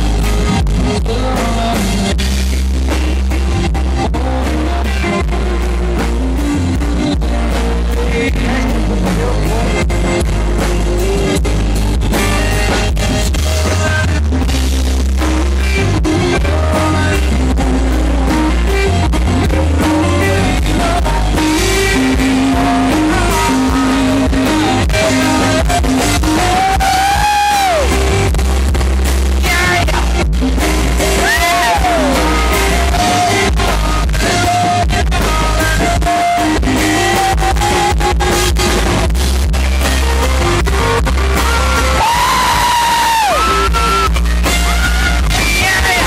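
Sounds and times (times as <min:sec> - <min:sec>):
person singing: 0:00.0 - 0:02.4, 0:03.4 - 0:28.3, 0:29.4 - 0:39.1, 0:40.0 - 0:46.0
country band playing: 0:00.0 - 0:46.0
electric guitar melody: 0:00.0 - 0:46.0.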